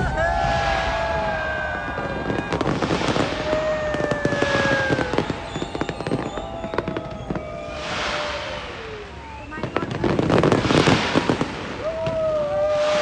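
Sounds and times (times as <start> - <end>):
bursts of hiss: 0.0 - 13.0
firework whistles: 0.0 - 13.0
fireworks crackling and popping: 0.0 - 13.0.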